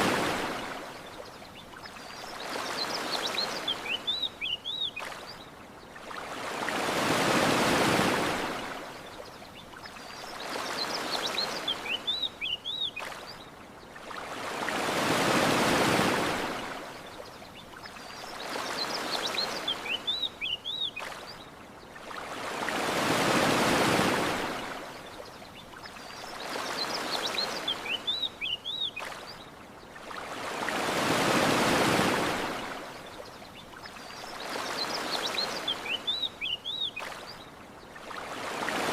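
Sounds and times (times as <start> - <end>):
ocean waves washing ashore: 0.0 - 38.9
small birds chirping: 1.0 - 6.0, 9.0 - 14.0, 17.1 - 22.0, 25.1 - 30.0, 33.0 - 38.0.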